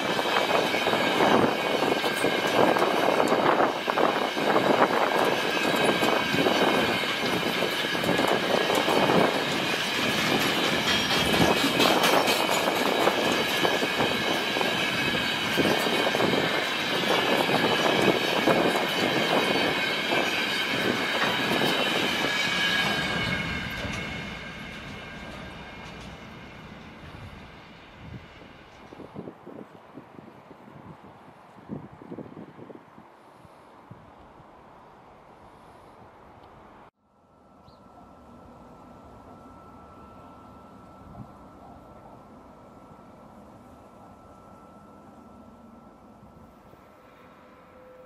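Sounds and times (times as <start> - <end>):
wheels clattering over rail joints: 0.0 - 27.6.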